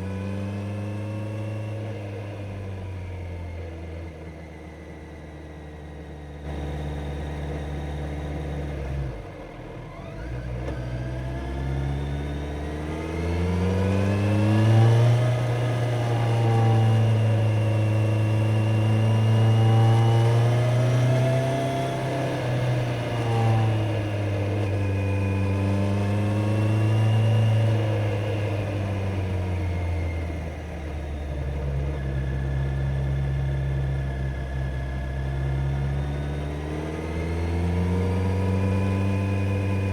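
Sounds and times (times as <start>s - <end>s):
motorcycle engine revving: 10.2s - 39.9s.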